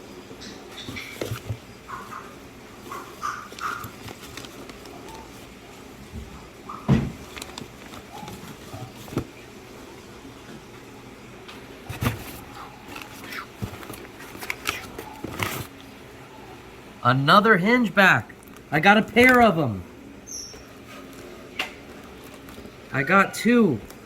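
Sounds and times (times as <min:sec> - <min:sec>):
knocks and rustles: 0:00.4 - 0:05.4, 0:06.1 - 0:09.3, 0:11.9 - 0:15.7.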